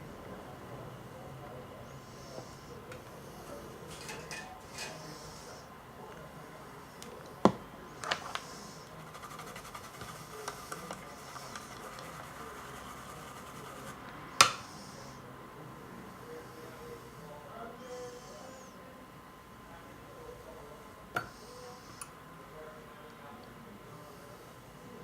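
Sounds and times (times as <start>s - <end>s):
faint steady whine: 0.0s - 25.0s
tools scratching and tapping: 3.9s - 5.0s.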